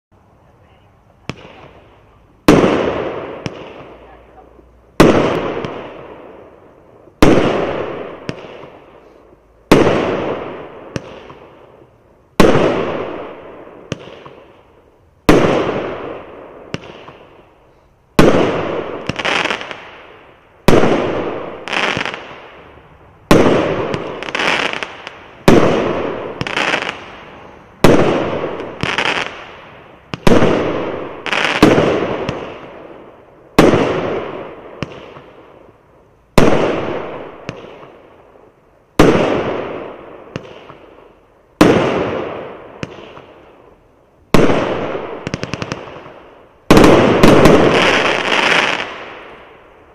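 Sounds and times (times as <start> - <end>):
fireworks bangs: 0.6 - 14.6, 15.2 - 17.4, 18.1 - 35.6, 36.3 - 38.0, 39.0 - 43.6, 44.3 - 49.7
softer fireworks bang: 23.2 - 32.8, 44.3 - 49.4.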